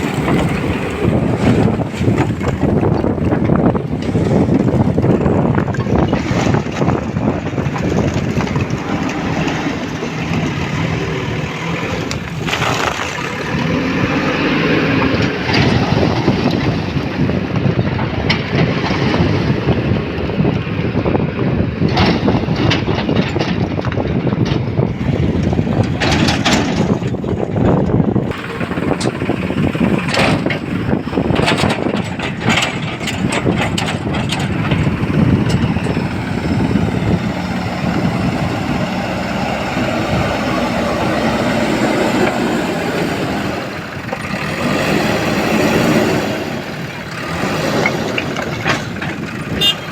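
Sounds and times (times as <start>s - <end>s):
heavy diesel engine running: 0.0s - 49.9s
sharp knocks and clatter: 25.4s - 40.5s.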